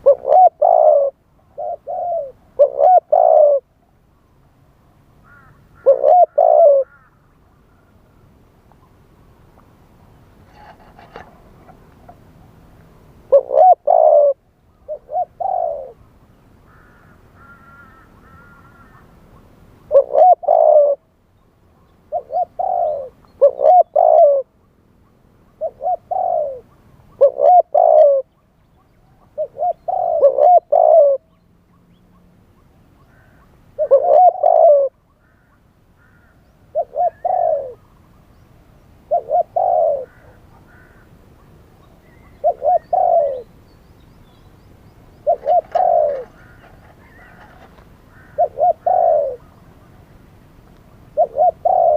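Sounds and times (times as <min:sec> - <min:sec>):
dove cooing: 0:00.0 - 0:03.8, 0:05.3 - 0:07.1, 0:10.5 - 0:12.5, 0:13.2 - 0:16.0, 0:16.7 - 0:19.1, 0:19.8 - 0:21.1, 0:22.1 - 0:24.6, 0:25.6 - 0:28.3, 0:29.2 - 0:31.4, 0:33.1 - 0:38.0, 0:39.0 - 0:43.6, 0:45.1 - 0:50.1, 0:51.0 - 0:51.9.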